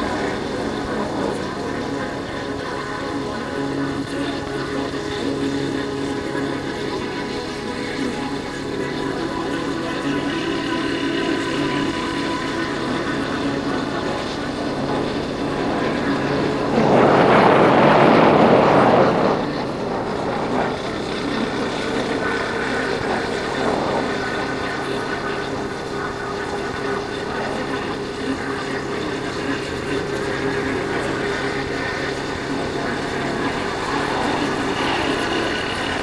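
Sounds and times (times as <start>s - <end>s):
motorcycle engine droning: 0.0s - 36.0s
wind and road noise: 11.7s - 36.0s
loud rushing noise: 13.9s - 24.6s.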